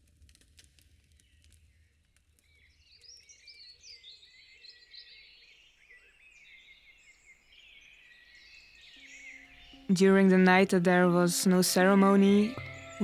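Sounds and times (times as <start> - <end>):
small birds chirping: 2.7 - 13.0.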